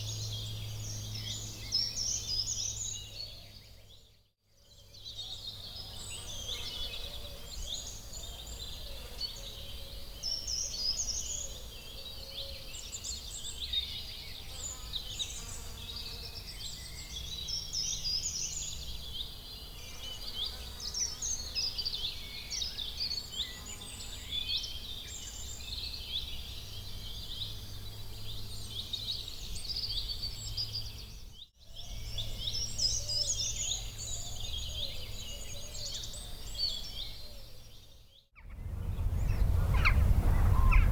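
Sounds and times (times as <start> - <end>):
small birds chirping: 4.8 - 40.9
low steady rumble: 38.4 - 40.9.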